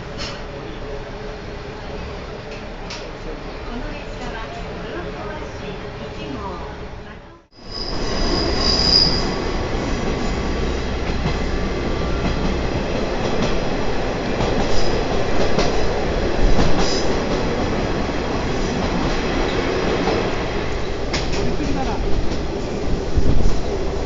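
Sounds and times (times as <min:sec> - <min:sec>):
train wheels rumbling on rails: 0:07.5 - 0:24.0
high wheel squeal: 0:07.6 - 0:09.6.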